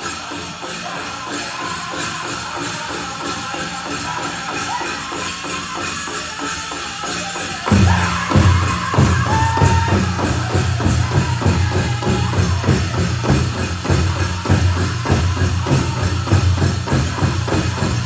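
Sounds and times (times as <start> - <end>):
singers singing high-pitched song: 0.0 - 18.0
fast beat on big drum: 7.7 - 18.0.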